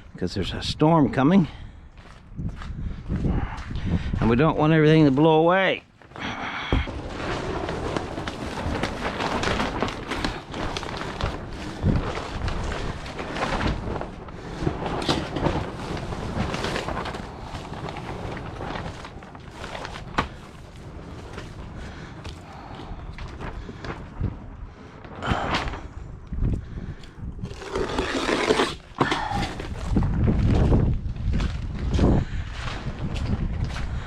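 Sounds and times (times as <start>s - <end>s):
wind buffeting microphone: 0.0s - 5.1s, 6.2s - 28.0s, 28.8s - 34.0s
rustling: 5.9s - 25.9s, 26.9s - 32.0s.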